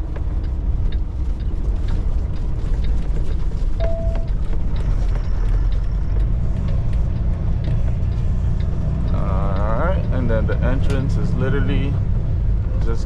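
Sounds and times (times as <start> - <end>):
truck engine and road drone: 0.0 - 13.0
short beep: 3.8 - 4.3.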